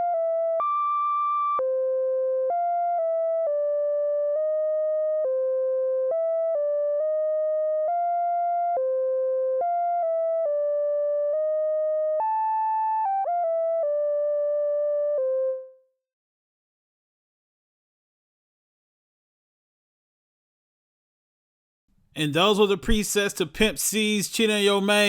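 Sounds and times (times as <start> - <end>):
synthesizer lead melody: 0.0 - 15.7.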